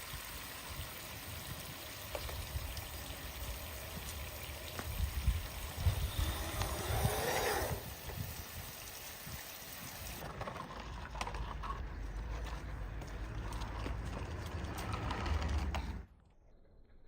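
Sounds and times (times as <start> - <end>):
water trickling: 0.0 - 10.2
water pouring: 0.0 - 10.9.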